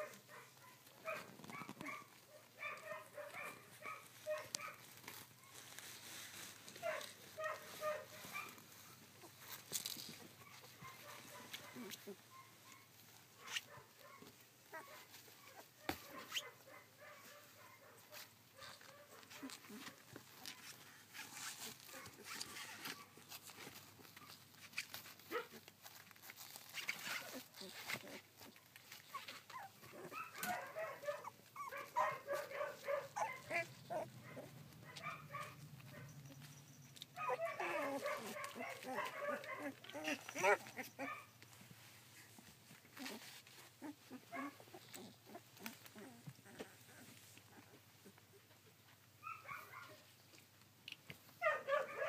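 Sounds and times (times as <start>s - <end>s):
puppies whimpering and squeaking: 4.0s - 13.1s, 19.4s - 32.5s, 33.1s - 48.5s
puppies squeaking and whimpering: 9.2s - 11.3s, 31.2s - 32.5s, 35.5s - 41.1s.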